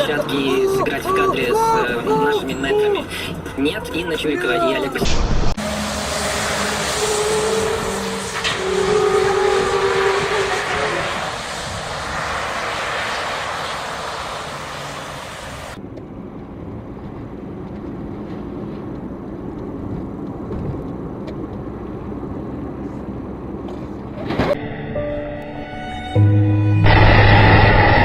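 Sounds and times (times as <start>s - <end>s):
low rumble of driving: 0.0s - 25.2s, 25.9s - 28.0s
loud hiss: 6.6s - 15.8s.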